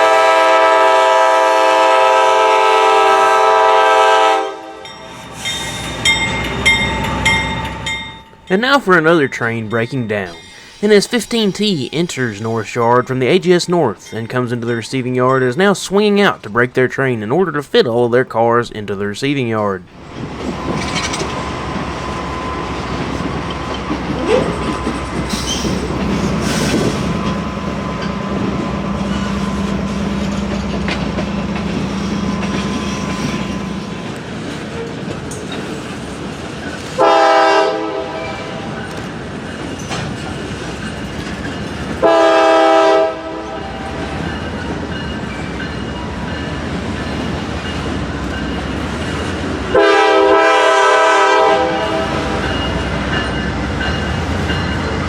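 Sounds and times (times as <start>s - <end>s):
train horn blasts: 0.0s - 5.0s, 37.0s - 38.8s, 42.0s - 44.0s, 49.7s - 52.5s
train wheels on rails: 0.0s - 16.4s, 19.9s - 55.0s
locomotive engine running: 19.8s - 36.5s.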